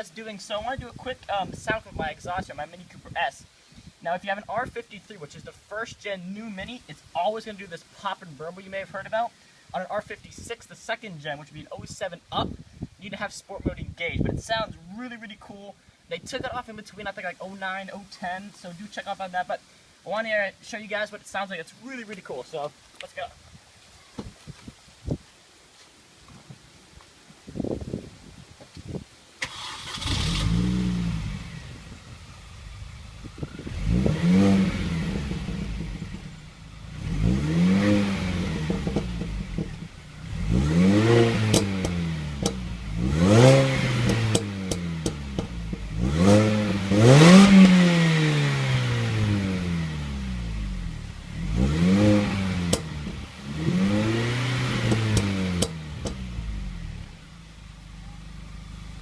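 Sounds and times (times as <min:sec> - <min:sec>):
exhaust pops and crackles: 0:00.0 - 0:03.4, 0:28.6 - 0:59.0
car engine revving: 0:29.4 - 0:59.0.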